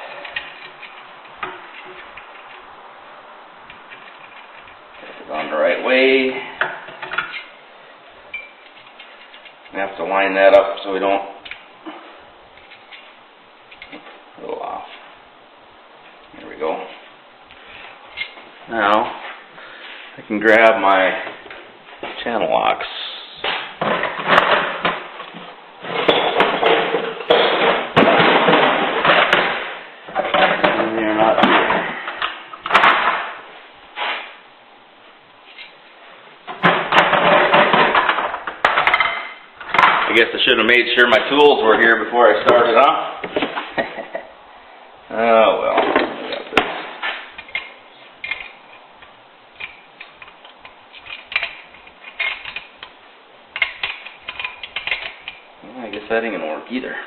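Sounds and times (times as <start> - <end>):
hand tools clattering: 25.8 - 33.2, 49.6 - 52.9, 53.6 - 56.1.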